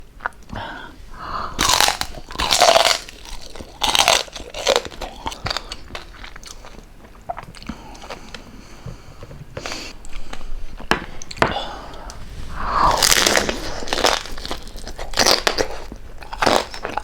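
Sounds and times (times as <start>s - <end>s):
loud crunching bites: 1.6s - 6.6s, 12.9s - 17.0s
chewing with small crackles: 1.6s - 11.4s, 13.0s - 17.0s.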